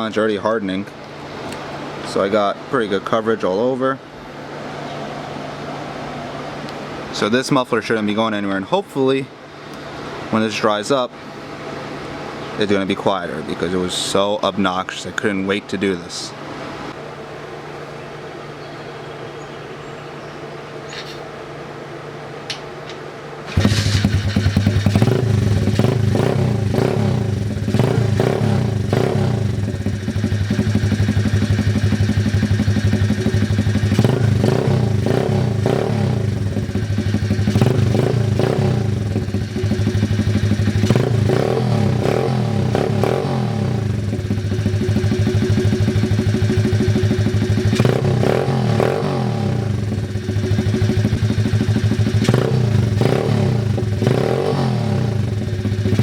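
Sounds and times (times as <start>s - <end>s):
motorcycle engine idling and revving: 21.0s - 56.0s.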